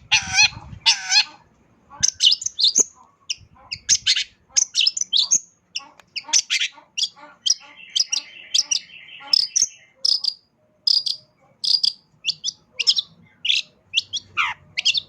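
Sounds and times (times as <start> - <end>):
bird singing sharp chirps: 6.4 - 15.0.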